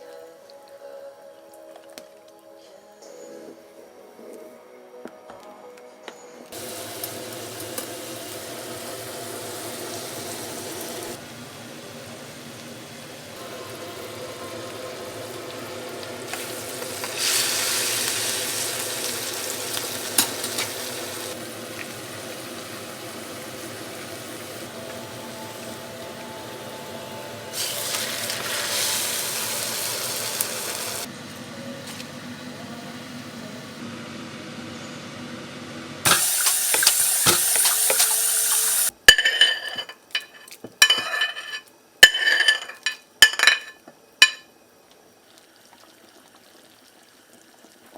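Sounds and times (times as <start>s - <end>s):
food sizzling in hot oil: 6.6s - 31.1s, 36.0s - 38.9s.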